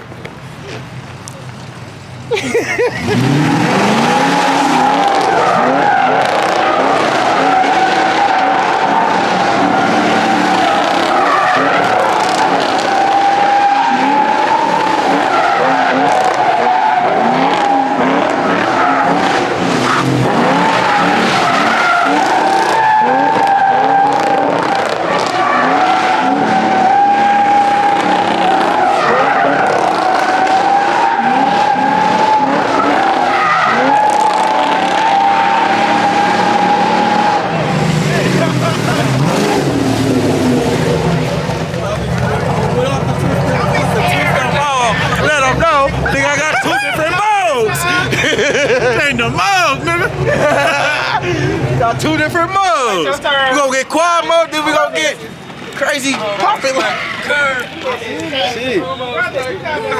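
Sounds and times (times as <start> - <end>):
car engine revving: 0.0 - 59.9
tyres squealing: 0.0 - 59.9.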